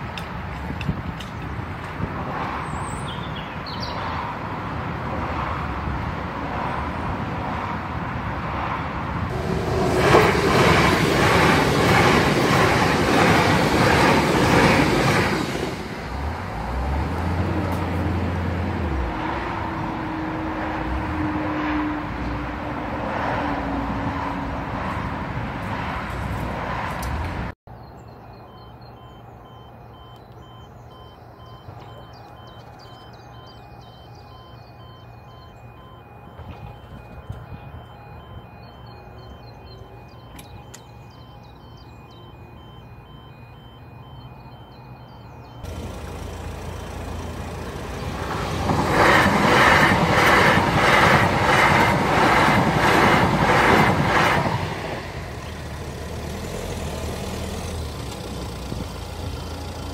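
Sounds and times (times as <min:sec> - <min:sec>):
train rushing and clattering past: 0:08.6 - 0:27.5, 0:45.7 - 0:59.9
faint two-tone crossing alarm: 0:27.8 - 0:59.9.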